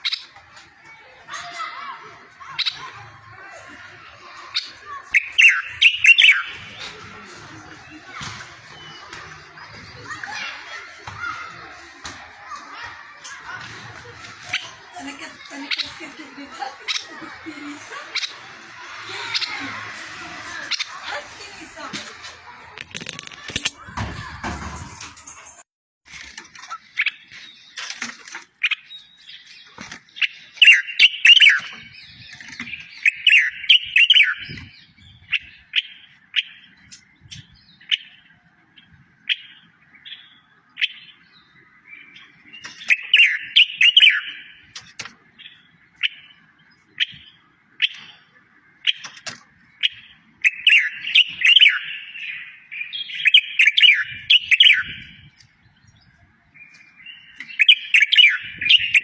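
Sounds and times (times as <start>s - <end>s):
songbird warbling trills: 4.2s - 6.8s.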